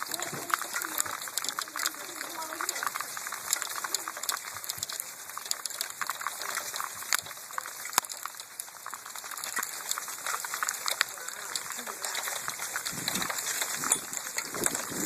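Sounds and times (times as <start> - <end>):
hailstones pelting down: 0.0 - 15.0.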